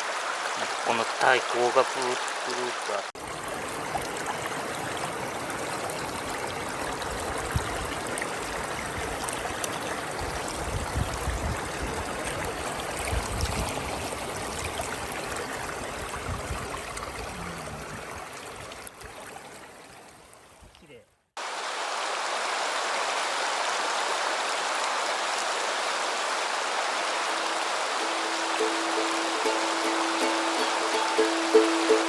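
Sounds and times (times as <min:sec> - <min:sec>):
stream rushing over rocks: 0:00.0 - 0:19.7, 0:21.4 - 0:32.0.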